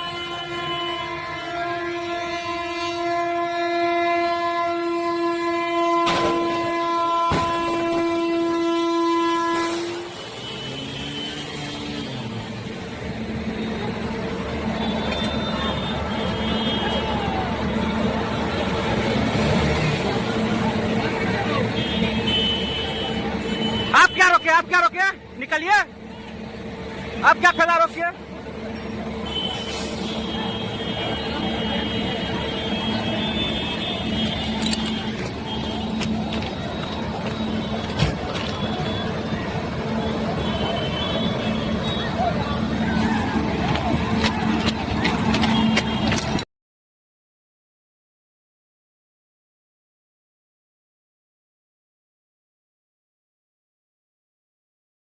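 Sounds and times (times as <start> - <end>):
train horn: 0.0 - 12.4, 14.8 - 18.6, 29.2 - 36.2, 38.5 - 42.2
vehicle engine rumble: 4.5 - 24.0, 25.1 - 46.5.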